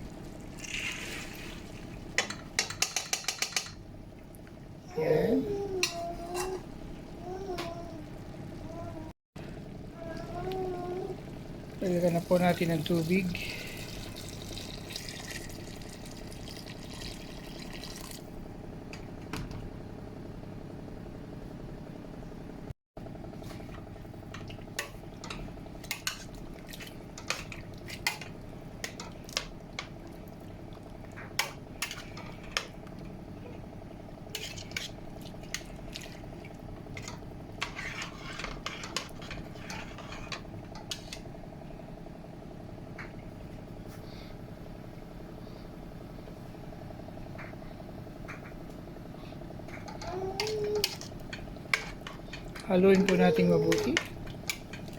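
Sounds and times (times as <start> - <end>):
steady background hum: 0.0 - 54.9
utensil clinking against a pot: 2.2 - 3.8
water pouring into a pot: 13.4 - 18.3.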